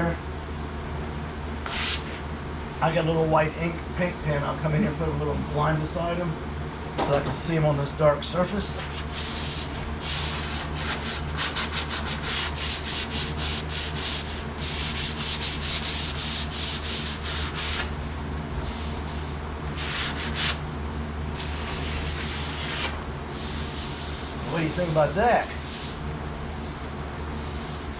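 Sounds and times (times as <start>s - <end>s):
sandpaper rubbing on metal: 8.8s - 17.9s, 18.6s - 20.6s, 21.4s - 27.9s.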